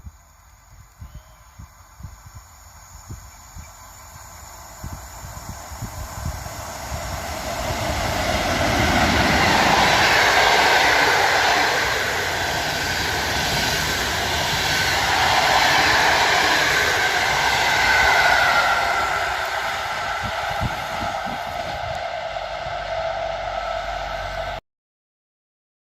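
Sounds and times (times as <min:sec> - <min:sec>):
train passing on rails: 0:00.0 - 0:24.6.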